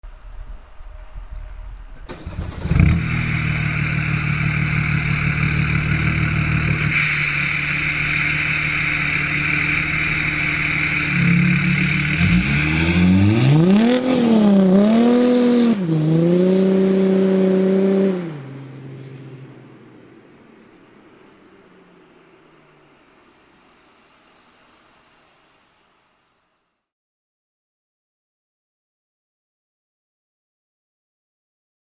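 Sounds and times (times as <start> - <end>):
diesel engine idling and revving: 2.1 - 22.8.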